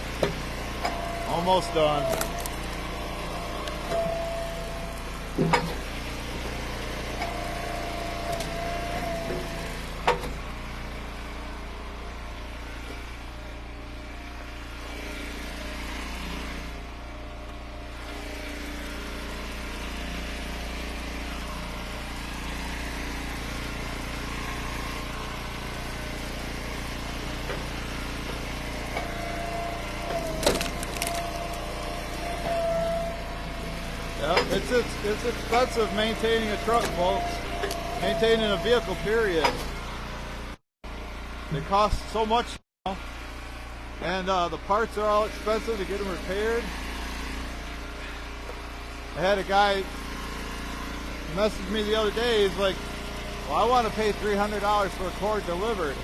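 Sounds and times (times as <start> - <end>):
hydraulic log splitter running: 0.0 - 56.0
wood cracking: 2.0 - 2.8, 30.2 - 31.6.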